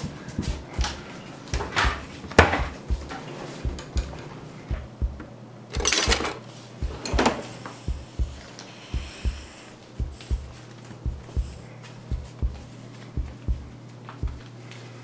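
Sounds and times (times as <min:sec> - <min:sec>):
cutlery clattering in a drawer: 0:05.8 - 0:06.4.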